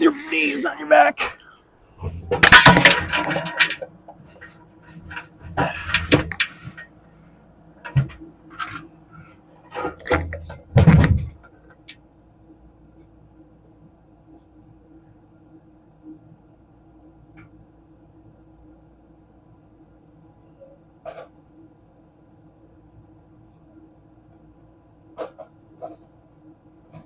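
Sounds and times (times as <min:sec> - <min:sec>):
faint steady hum: 0:00.0 - 0:27.0
metal fan housing clunking and scraping: 0:02.0 - 0:07.0, 0:07.8 - 0:08.9, 0:09.6 - 0:11.9.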